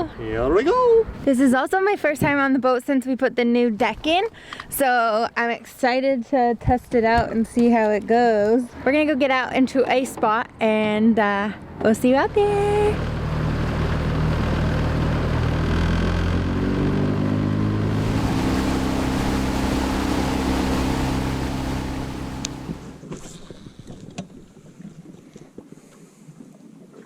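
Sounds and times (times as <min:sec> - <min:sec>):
boat motor running: 0:12.2 - 0:23.4.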